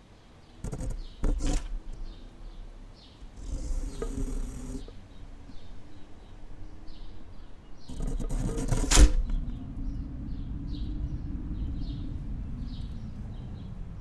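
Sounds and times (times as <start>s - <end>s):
low wind rumble: 0.0s - 14.0s
small bird chirping: 0.0s - 14.0s
rustling noise: 0.6s - 5.6s, 7.9s - 9.6s.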